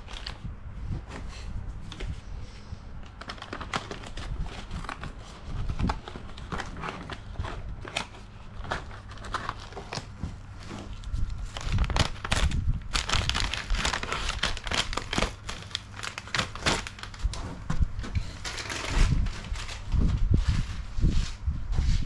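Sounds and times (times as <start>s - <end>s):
tape crinkling and crackling: 0.0s - 0.5s, 3.0s - 20.7s.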